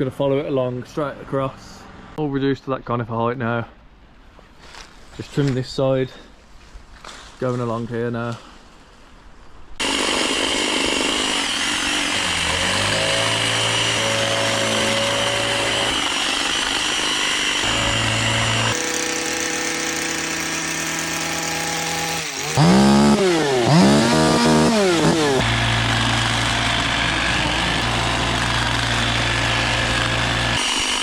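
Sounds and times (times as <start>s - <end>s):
engine revving: 9.8s - 30.9s
hedge trimmer running: 9.8s - 31.0s.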